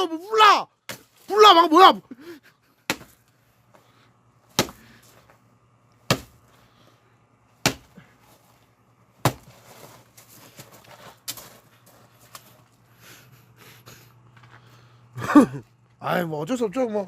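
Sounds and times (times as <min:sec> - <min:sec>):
axe chopping wood: 0:02.8 - 0:03.2, 0:04.5 - 0:05.0, 0:06.0 - 0:06.4, 0:07.6 - 0:08.0, 0:09.2 - 0:09.5.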